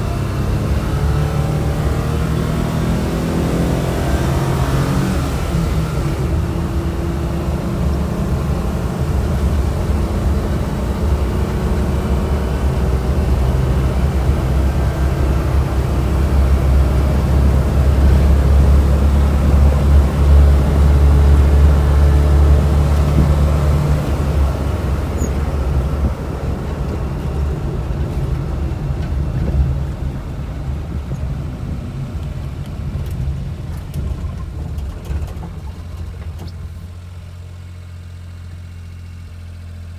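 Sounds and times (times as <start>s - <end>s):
road noise: 0.0s - 39.0s
small van engine running: 0.0s - 39.9s.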